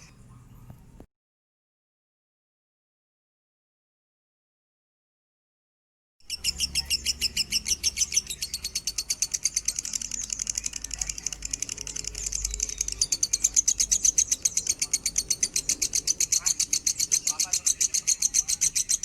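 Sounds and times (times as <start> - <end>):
lovebird rapid chirping: 6.3 - 19.0.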